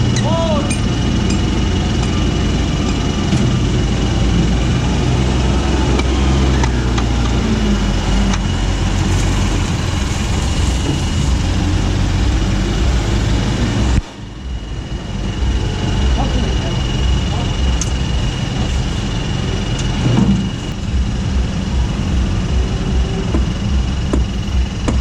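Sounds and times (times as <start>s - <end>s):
truck diesel engine running: 0.0s - 25.0s.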